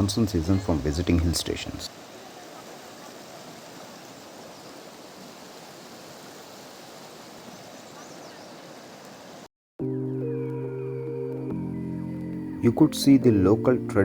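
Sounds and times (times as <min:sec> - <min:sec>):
river water rushing: 0:00.0 - 0:09.5.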